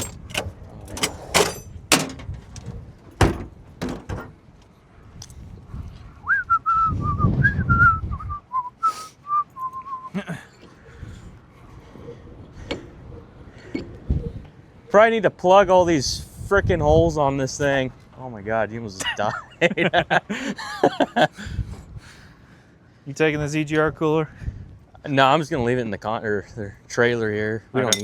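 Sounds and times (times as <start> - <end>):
metal clanks and knocks: 0.0 - 4.4
person whistling a tune: 6.3 - 10.2.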